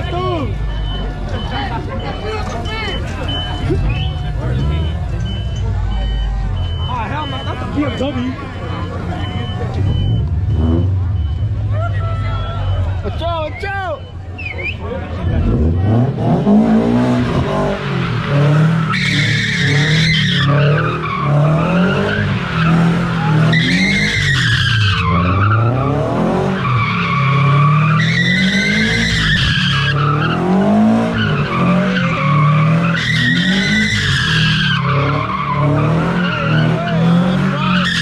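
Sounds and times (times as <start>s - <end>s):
car engine revving: 0.0s - 13.3s, 14.5s - 38.0s
tyres squealing: 16.8s - 38.0s.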